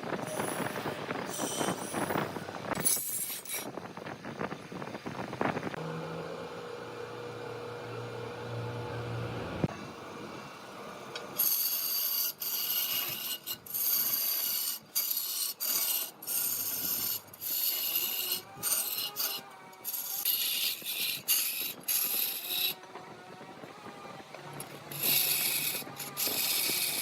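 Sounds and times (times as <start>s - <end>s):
lathe tool cutting wood: 10.4s - 27.0s.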